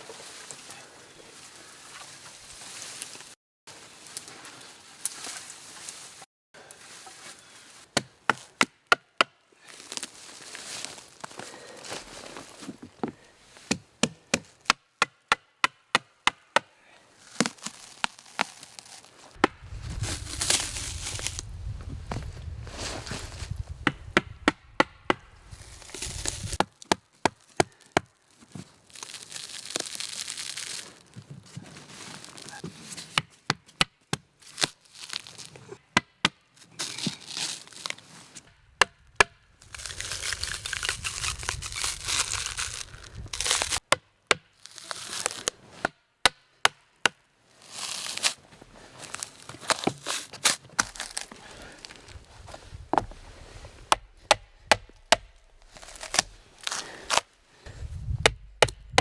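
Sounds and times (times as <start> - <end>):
brush crackling and rustling: 0.0 - 8.6, 9.6 - 13.7, 17.1 - 24.1, 25.4 - 33.0, 34.4 - 35.8, 36.6 - 43.8, 44.6 - 45.8, 47.5 - 59.0
dry sticks snapping: 17.3 - 21.5, 23.8 - 28.0, 38.8 - 43.8, 49.1 - 52.3, 53.9 - 57.3.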